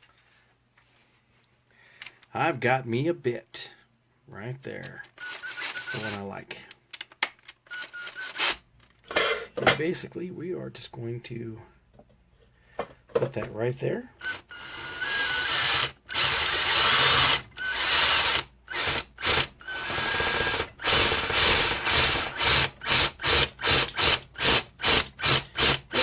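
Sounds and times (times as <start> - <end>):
power drill boring through metal: 5.2 - 6.2, 14.2 - 26.0.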